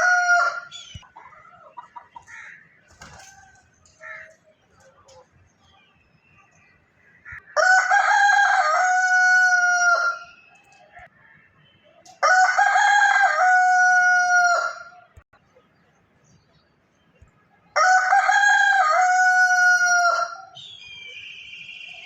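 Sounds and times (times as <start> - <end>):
rooster crowing: 0.0 - 0.7, 7.6 - 10.2, 12.2 - 15.0, 17.8 - 20.5.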